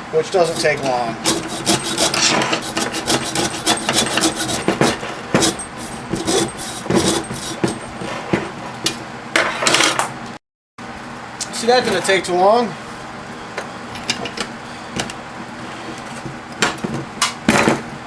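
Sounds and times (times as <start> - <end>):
hacksaw cutting copper: 0.2 - 8.6.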